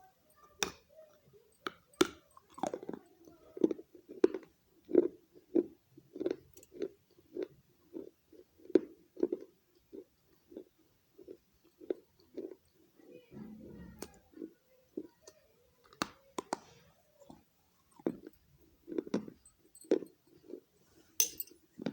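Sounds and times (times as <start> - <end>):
moist chewing: 13.9 - 20.7.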